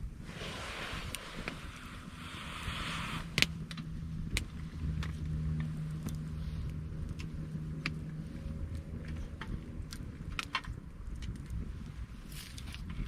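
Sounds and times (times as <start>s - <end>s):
campfire crackling and popping: 0.0s - 13.0s
low steady hum: 0.0s - 13.0s
rushing hiss: 0.2s - 3.6s.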